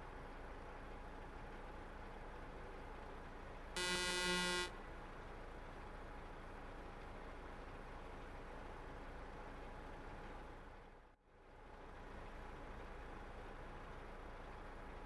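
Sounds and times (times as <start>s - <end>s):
truck cab low hum: 3.8s - 4.7s
vehicle horn: 3.8s - 4.8s.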